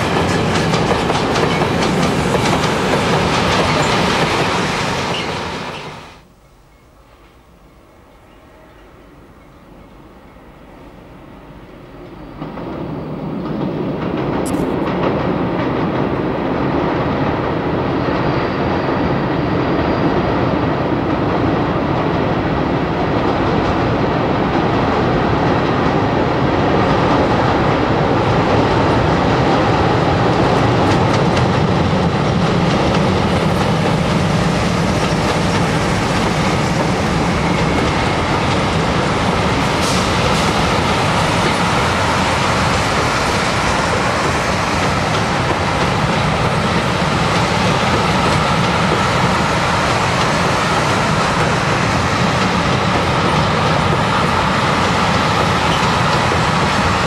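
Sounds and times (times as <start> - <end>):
train wheels clattering on bridge: 0.0 - 6.0, 12.3 - 18.8, 19.6 - 57.0
diesel locomotive engines running: 0.0 - 6.3, 24.0 - 57.0.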